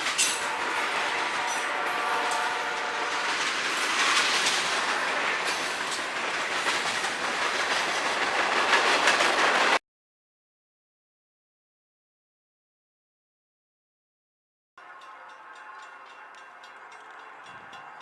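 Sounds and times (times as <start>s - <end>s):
freight train cars rolling past: 0.0s - 9.8s, 14.8s - 18.0s
train wheels clacking over rail joints: 0.0s - 9.8s.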